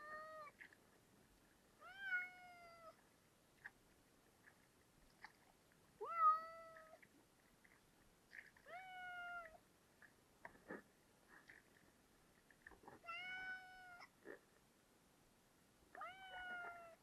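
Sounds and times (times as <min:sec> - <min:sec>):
cat meowing: 0:01.8 - 0:03.0, 0:06.0 - 0:07.0, 0:08.7 - 0:09.6, 0:13.0 - 0:14.1, 0:16.0 - 0:17.0.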